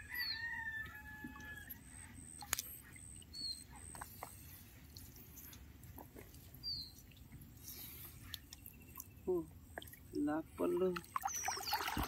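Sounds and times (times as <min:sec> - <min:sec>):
high falling bird chirps: 0:11.2 - 0:12.0.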